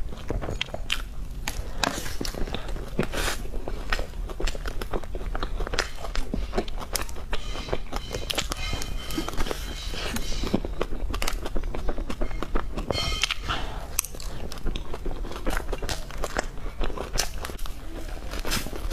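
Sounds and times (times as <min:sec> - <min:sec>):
biting and chewing: 0:00.0 - 0:18.9.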